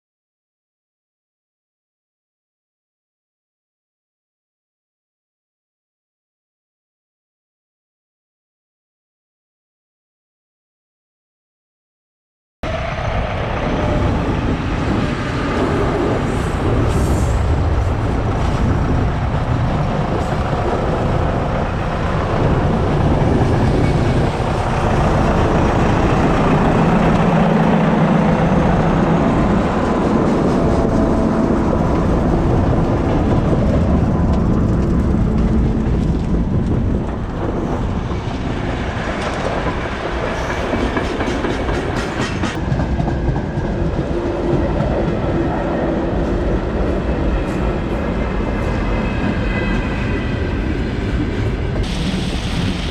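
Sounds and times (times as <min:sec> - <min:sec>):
rail vehicle rumble: 0:12.6 - 0:52.9.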